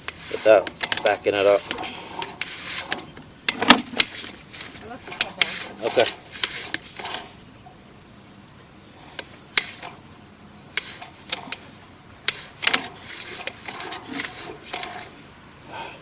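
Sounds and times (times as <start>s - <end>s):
camera cable clicking in a drain: 0.0s - 7.3s, 9.1s - 10.1s, 10.7s - 15.1s.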